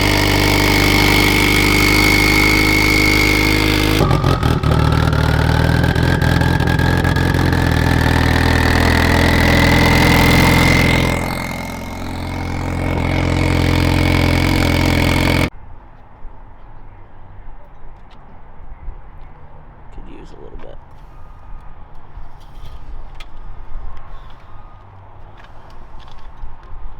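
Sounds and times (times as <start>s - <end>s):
car engine running: 0.0s - 15.5s
high whine rising in pitch: 0.0s - 15.5s.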